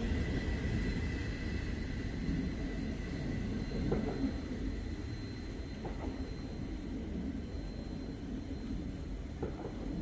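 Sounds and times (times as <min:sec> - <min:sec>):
train rumble: 0:00.0 - 0:07.8.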